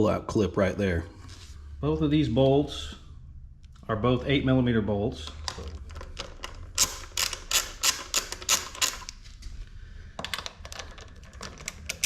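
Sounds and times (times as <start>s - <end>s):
ratchet wrench clicking: 6.8s - 9.1s.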